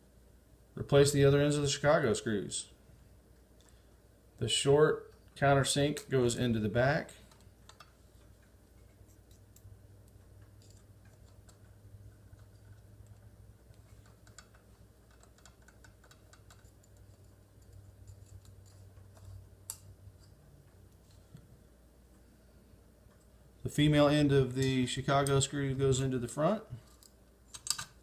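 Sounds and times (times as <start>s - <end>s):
low steady hum: 0.0s - 28.0s
small metal parts clicking: 7.2s - 20.4s, 26.9s - 28.0s.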